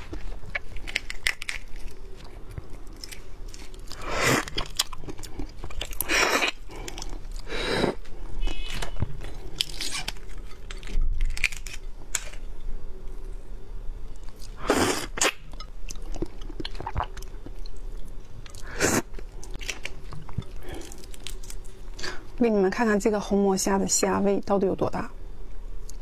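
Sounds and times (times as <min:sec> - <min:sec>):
shrimp shell crunching: 0:00.1 - 0:07.5, 0:08.5 - 0:12.4.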